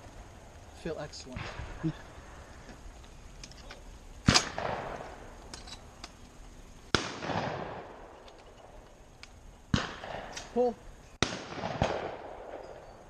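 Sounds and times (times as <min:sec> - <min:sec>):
shotgun shots echoing: 0:04.2 - 0:05.3, 0:06.9 - 0:08.2, 0:09.7 - 0:12.8.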